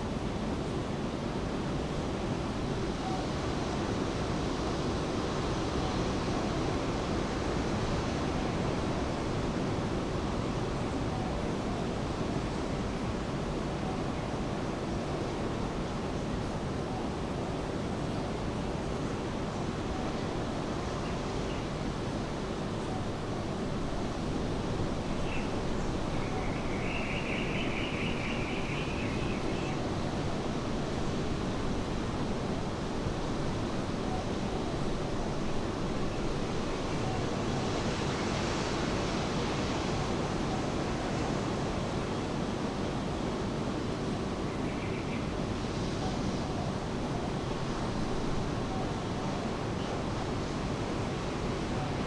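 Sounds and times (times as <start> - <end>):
surf washing on a beach: 29.8 - 44.5, 45.3 - 52.0.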